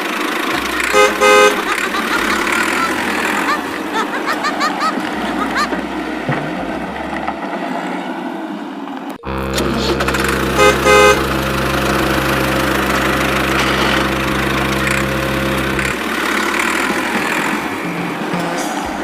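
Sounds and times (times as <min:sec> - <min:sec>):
vehicle engine idling: 0:00.0 - 0:07.5, 0:09.2 - 0:19.0
noisy rumble: 0:00.0 - 0:08.4, 0:09.2 - 0:19.0
short horn honks: 0:00.5 - 0:04.0, 0:09.2 - 0:18.0.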